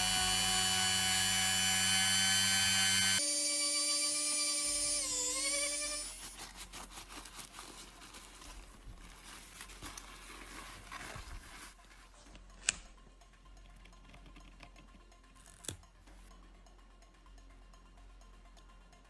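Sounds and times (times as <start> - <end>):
electric power tool whining: 0.0 - 6.4
scraping and crinkling: 6.4 - 12.4.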